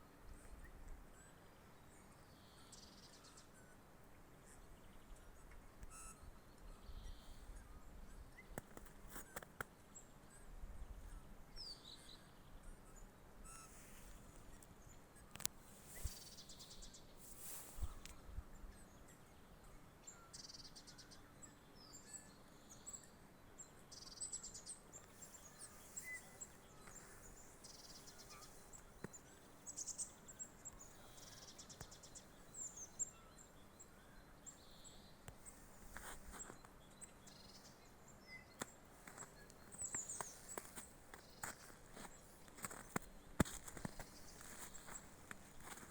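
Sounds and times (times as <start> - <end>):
birds chirping and trilling: 10.2 - 45.9.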